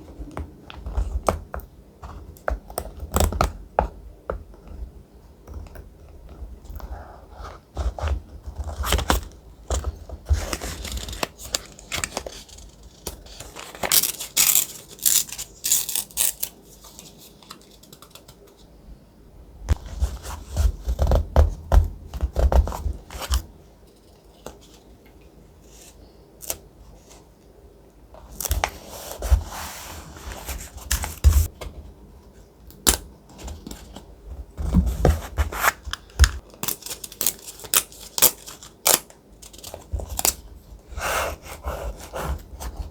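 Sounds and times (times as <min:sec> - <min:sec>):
paper rustling and tearing: 0:10.3 - 0:17.8.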